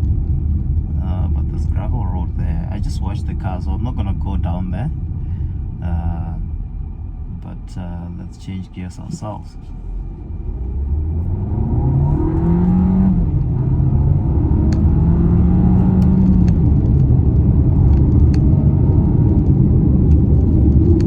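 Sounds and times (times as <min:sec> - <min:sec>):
car engine accelerating with upshifts: 0:07.3 - 0:21.0
tyre and road noise: 0:08.8 - 0:21.0.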